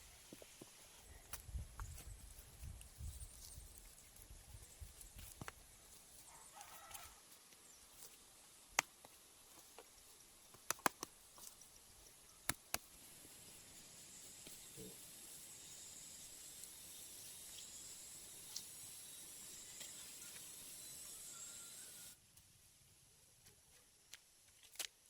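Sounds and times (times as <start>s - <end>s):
faint steady hiss: 0.0s - 25.0s
sharp clicks: 10.5s - 11.2s, 12.4s - 12.9s.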